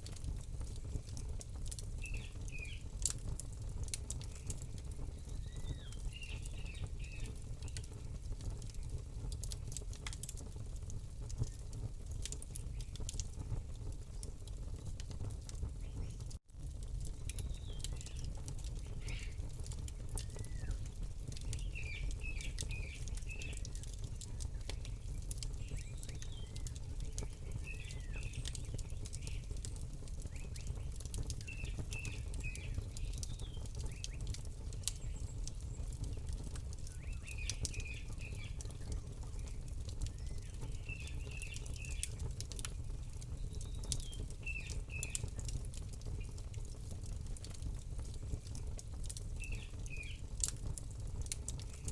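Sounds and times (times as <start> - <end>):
campfire crackling and popping: 0.0 - 51.9
bird chirping: 5.1 - 7.8, 40.1 - 42.0.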